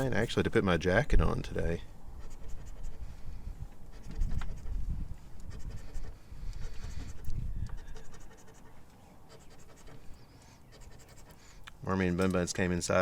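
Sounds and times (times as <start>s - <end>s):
lottery ticket scratching: 5.4s - 11.5s.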